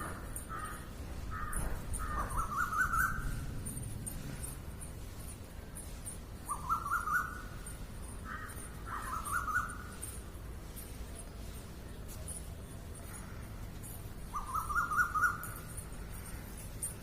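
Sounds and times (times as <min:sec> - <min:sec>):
high-pitched bird chirping: 0:01.5 - 0:03.5, 0:06.4 - 0:07.7, 0:08.4 - 0:10.2, 0:14.3 - 0:16.3.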